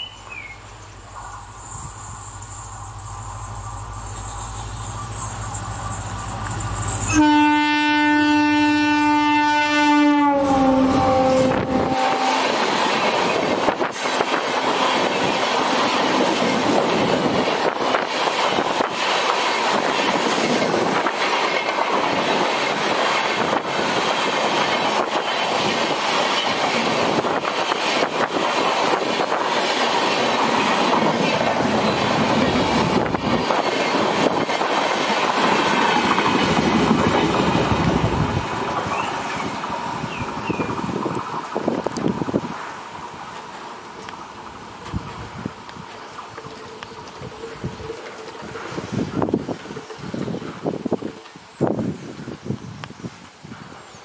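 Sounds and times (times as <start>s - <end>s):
train coaches rushing by: 0.0s - 54.0s
locomotive horn: 6.8s - 12.6s
wheels clicking over rail joints: 12.0s - 52.5s.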